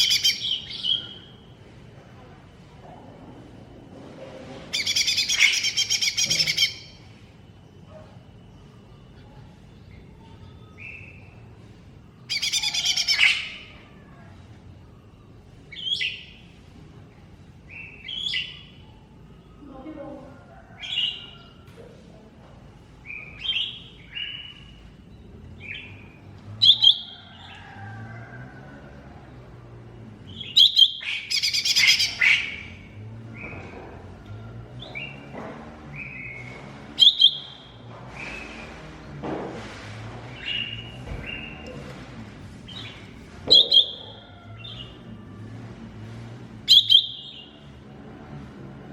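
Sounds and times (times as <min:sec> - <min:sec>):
bird singing trills and whistles: 0:00.0 - 0:01.4, 0:04.8 - 0:07.0, 0:08.6 - 0:11.5, 0:15.7 - 0:16.5, 0:17.6 - 0:19.4, 0:23.0 - 0:27.2, 0:30.3 - 0:33.7, 0:36.0 - 0:38.7, 0:42.7 - 0:45.0, 0:46.7 - 0:47.6
bird whistling and trilling: 0:04.8 - 0:07.0, 0:26.6 - 0:27.2, 0:30.3 - 0:32.7, 0:36.0 - 0:38.7, 0:42.8 - 0:44.2, 0:46.7 - 0:47.5.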